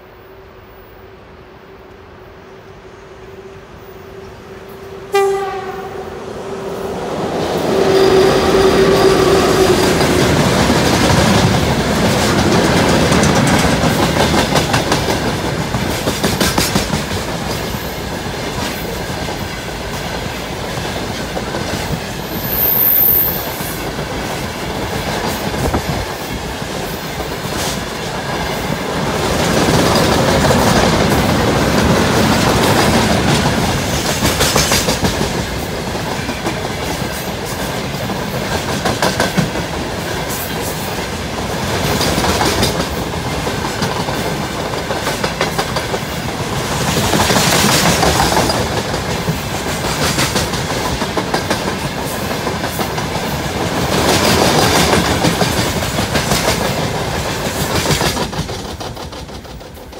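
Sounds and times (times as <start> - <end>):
wheels clacking over rail joints: 6.9 - 20.1, 27.2 - 59.9.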